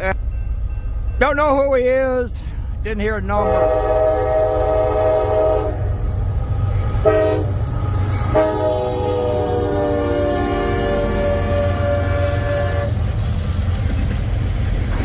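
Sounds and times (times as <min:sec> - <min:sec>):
train rumbling: 0:00.0 - 0:15.0
locomotive air horn blasts: 0:03.4 - 0:13.0.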